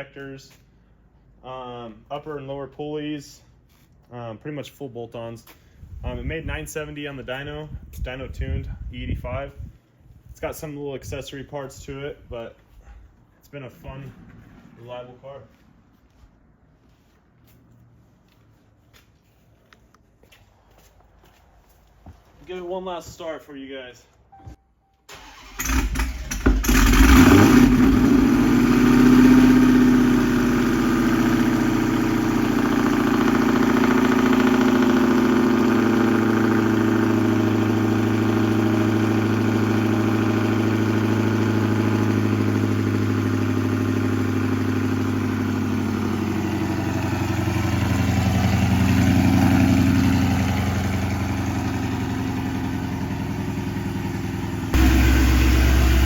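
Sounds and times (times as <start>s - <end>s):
engine cranking and firing: 25.1s - 56.0s
engine idling: 25.1s - 56.0s
engine revving: 25.2s - 56.0s.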